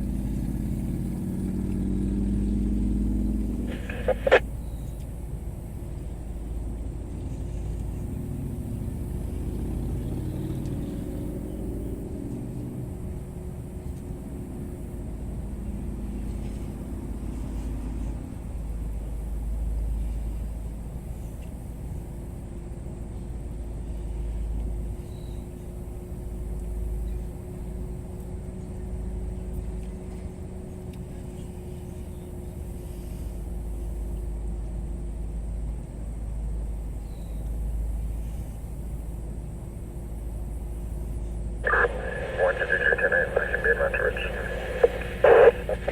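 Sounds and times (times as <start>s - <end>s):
faint steady hum: 2.4s - 11.7s, 40.7s - 45.9s.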